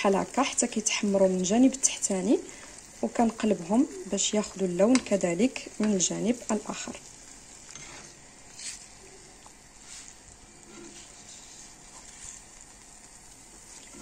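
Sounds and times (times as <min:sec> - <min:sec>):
dough sizzling in hot oil: 0:00.0 - 0:14.0
spatula taps: 0:04.9 - 0:05.1.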